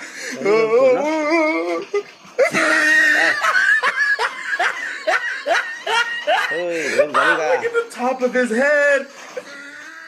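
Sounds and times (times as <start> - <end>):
person laughing: 0.4 - 7.7.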